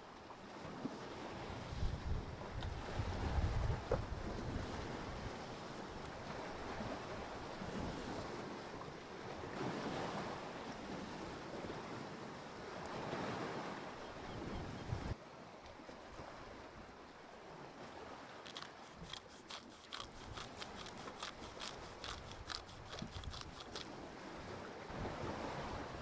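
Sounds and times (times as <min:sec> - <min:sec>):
ocean waves washing ashore: 0:00.0 - 0:26.0
wind buffeting microphone: 0:01.6 - 0:05.3.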